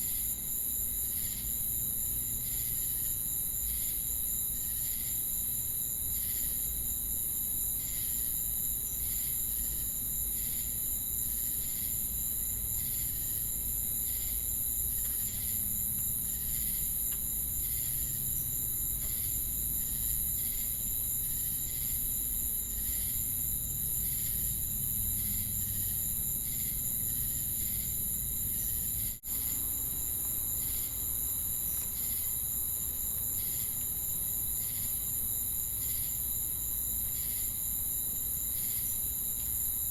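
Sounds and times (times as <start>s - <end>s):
crickets and cicadas droning: 0.0s - 39.9s
rhythmic insect chirps: 6.1s - 39.9s.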